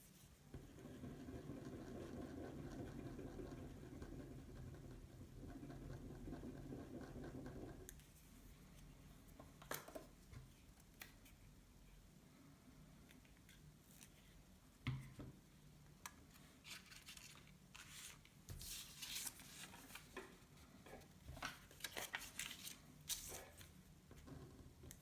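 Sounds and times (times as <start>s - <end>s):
paper rustling: 16.3s - 20.4s, 21.3s - 23.7s.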